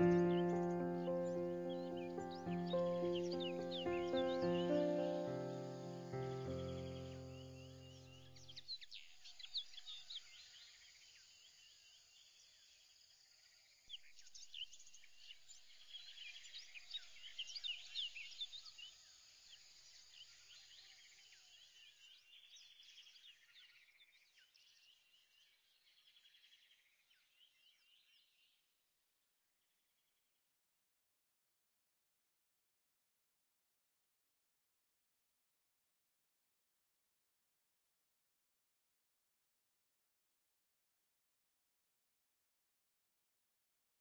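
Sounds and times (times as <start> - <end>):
faint small bird chirping: 0.0 - 28.8.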